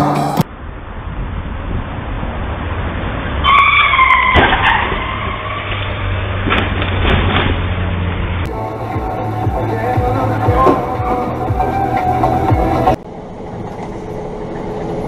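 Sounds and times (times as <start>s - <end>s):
car engine and road rumble: 0.0s - 15.0s
high tyre squeal: 3.2s - 6.4s.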